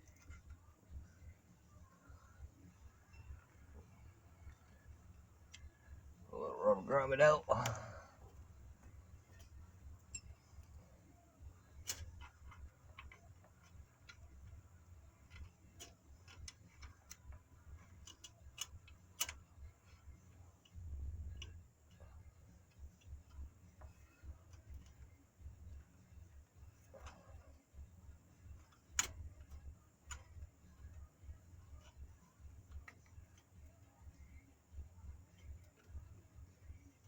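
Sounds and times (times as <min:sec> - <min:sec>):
tools clicking and tapping: 0:09.3 - 0:10.8, 0:15.2 - 0:22.1.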